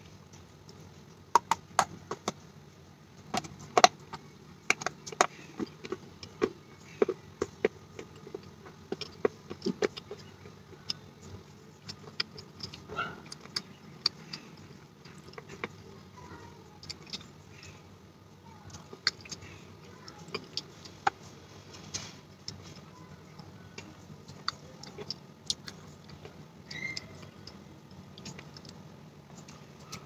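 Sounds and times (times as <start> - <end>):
crunchy chewing of clay: 0.0 - 30.0.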